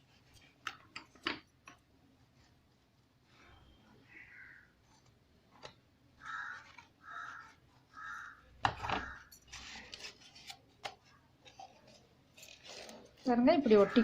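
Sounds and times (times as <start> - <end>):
bird cawing: 4.0 - 4.8, 6.2 - 9.4, 13.7 - 14.0.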